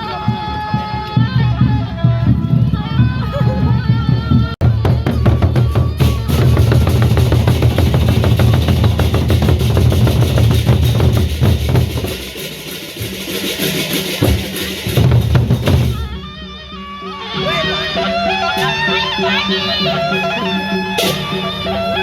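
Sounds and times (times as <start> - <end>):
heavy bass drum: 3.2 - 16.2
procession band drumming: 4.6 - 16.2.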